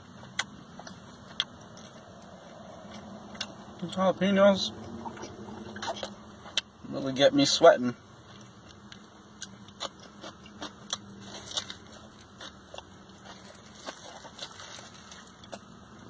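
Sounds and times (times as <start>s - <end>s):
chewing and biting: 0.0s - 4.0s, 4.8s - 6.7s, 8.2s - 16.0s
plastic wrap crackling: 13.3s - 15.5s.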